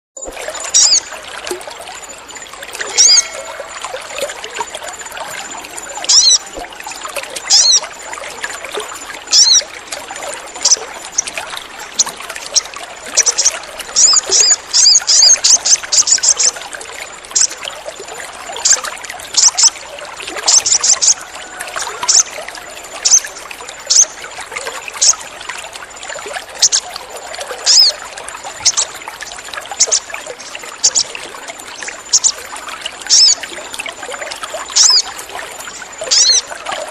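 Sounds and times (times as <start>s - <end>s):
bird chirping calls: 0.2s - 1.1s, 2.8s - 4.3s, 5.9s - 6.5s, 7.5s - 7.9s, 9.3s - 9.6s, 12.0s - 16.5s, 23.0s - 23.3s, 23.9s - 24.2s, 26.6s - 26.9s, 27.7s - 28.0s, 31.8s - 32.4s, 33.1s - 33.4s, 34.8s - 35.1s, 36.0s - 36.5s
trickling water: 0.2s - 36.9s.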